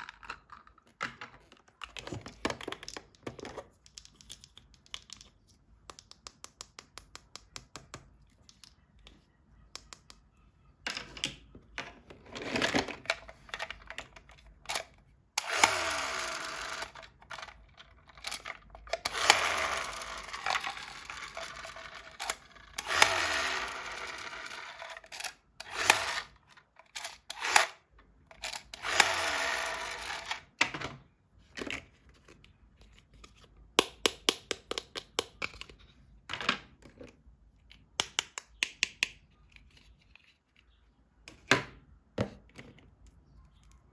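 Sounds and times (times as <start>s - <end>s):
plastic toys clattering: 0.0s - 5.3s, 10.9s - 31.0s.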